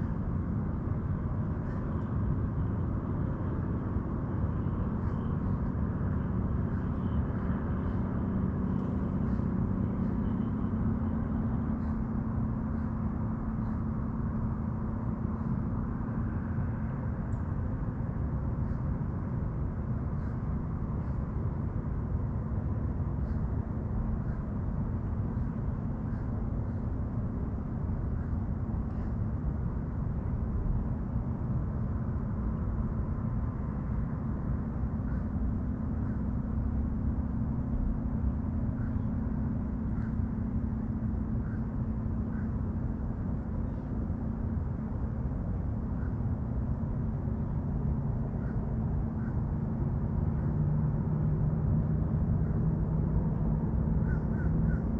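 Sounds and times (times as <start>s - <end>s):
faint bird chirps: 38.3s - 42.8s.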